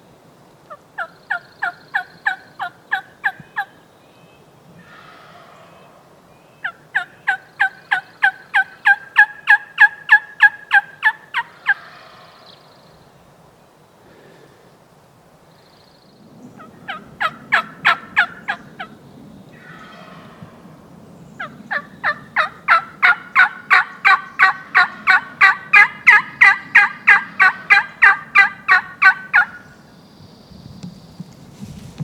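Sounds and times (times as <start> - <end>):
turkey yelping: 6.6 - 12.3, 16.6 - 18.9, 19.6 - 20.4, 21.4 - 29.6.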